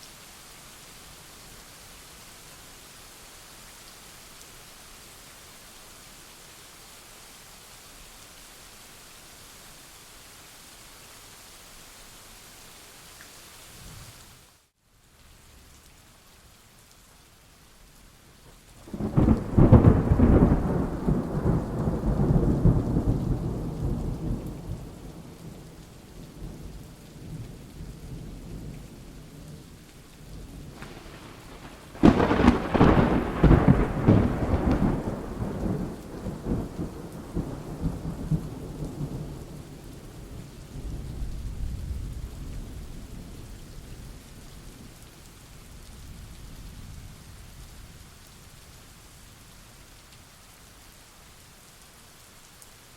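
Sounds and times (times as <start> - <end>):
steady rain: 0.0 - 52.9
rolling thunder: 18.8 - 25.4, 30.6 - 39.8
loud thunderclap: 30.6 - 39.3.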